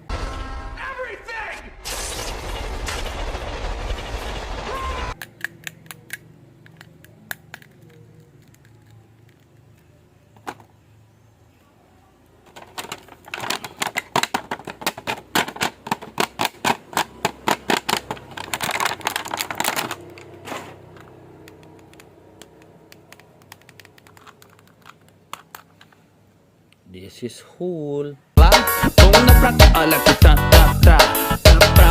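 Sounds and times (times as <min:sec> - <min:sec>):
plastic toy clicking: 0:05.2 - 0:10.6, 0:12.5 - 0:20.3, 0:21.4 - 0:26.0.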